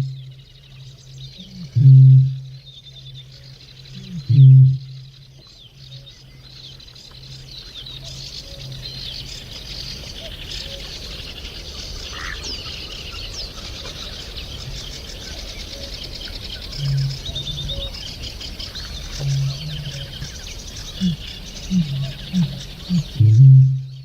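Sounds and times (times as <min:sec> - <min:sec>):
faint low hooting tone: 0:00.0 - 0:06.1, 0:13.7 - 0:18.1, 0:18.7 - 0:24.0
small birds chirping and trilling: 0:00.0 - 0:24.0.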